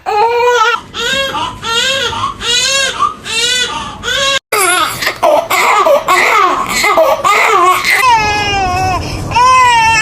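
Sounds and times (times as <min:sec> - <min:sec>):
baby crying: 0:00.0 - 0:10.0.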